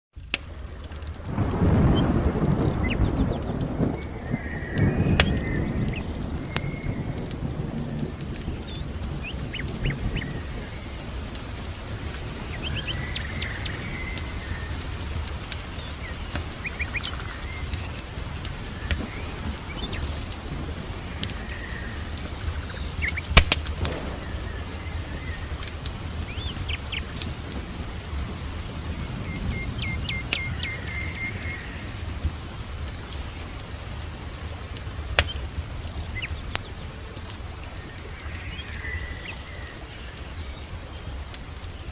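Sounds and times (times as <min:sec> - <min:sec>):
sharp crackles: 0:00.1 - 0:41.9
loud crack: 0:00.2 - 0:08.8, 0:23.3 - 0:29.6
background rumble: 0:00.2 - 0:41.9
songbirds chirping and trilling: 0:01.3 - 0:41.9.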